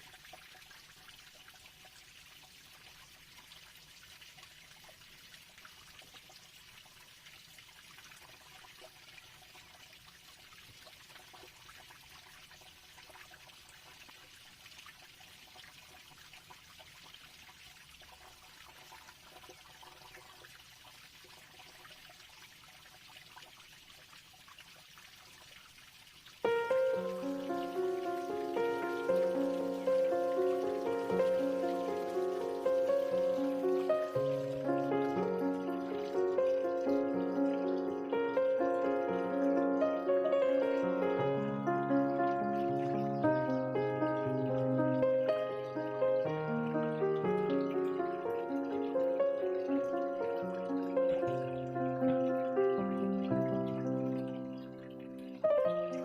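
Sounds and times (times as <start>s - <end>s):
faint steady hiss: 25.4s - 56.0s.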